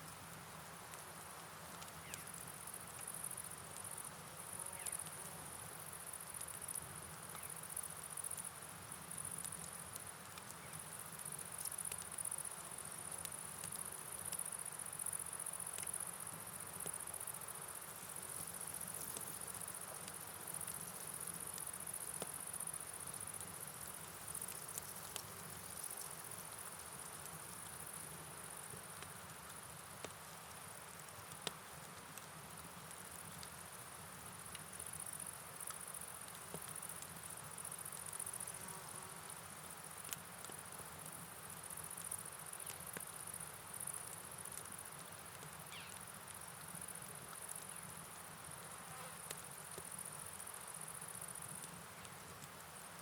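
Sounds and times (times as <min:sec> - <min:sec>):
rain and flowing water hiss: 0:00.0 - 0:53.0
insects chirring: 0:40.7 - 0:53.0.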